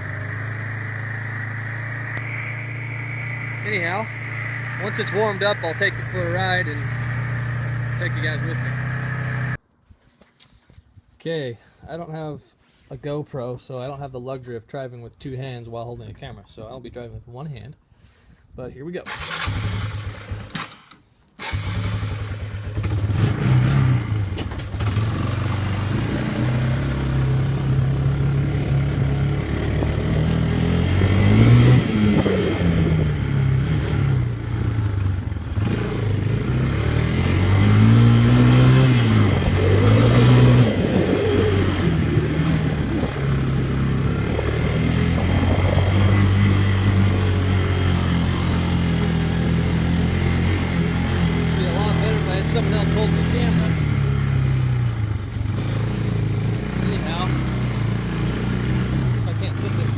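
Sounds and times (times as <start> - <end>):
quad bike engine revving: 0.0 - 9.6, 19.1 - 59.9.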